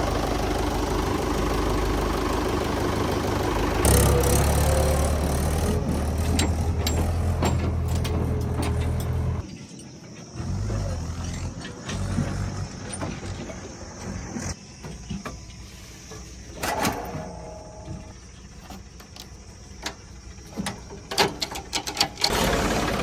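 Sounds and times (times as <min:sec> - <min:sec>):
diesel engine running low: 0:00.0 - 0:23.0
metallic clanks and clicks: 0:03.9 - 0:10.1, 0:18.7 - 0:22.4.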